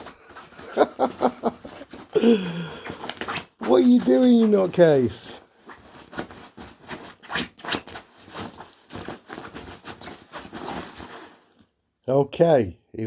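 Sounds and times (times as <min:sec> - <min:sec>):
puppy scratching at fabric bed: 0:05.7 - 0:11.4.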